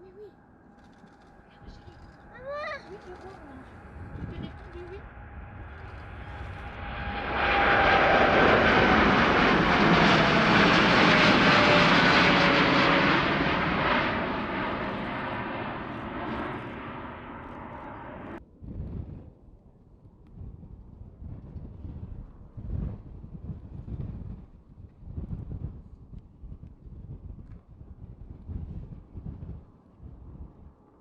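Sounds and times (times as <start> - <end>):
jet airliner taking off: 1.1 - 18.4
jet engine whine falling: 3.4 - 18.4.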